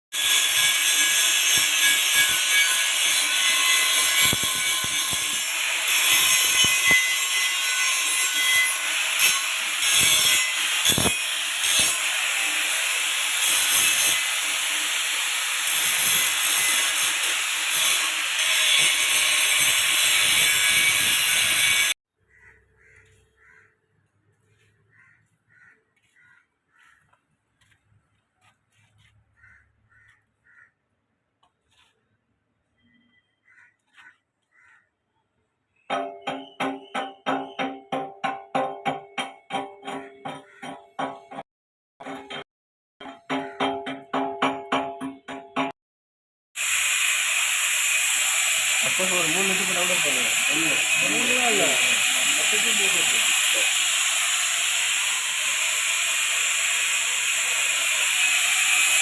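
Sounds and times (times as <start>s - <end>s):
power tool grinding metal: 0.2s - 22.0s, 46.6s - 59.0s
faint bird calls: 22.2s - 27.2s, 29.3s - 30.8s, 32.8s - 35.3s.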